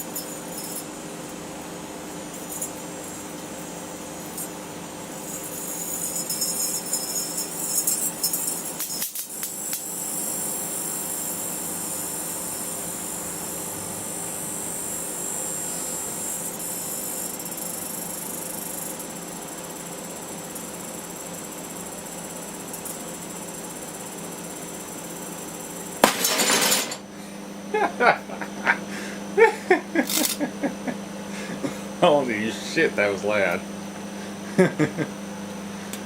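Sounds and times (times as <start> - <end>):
microwave oven humming: 0.0 - 36.0
steady high buzz: 0.0 - 36.0
sharp electrical cracks: 8.8 - 10.0.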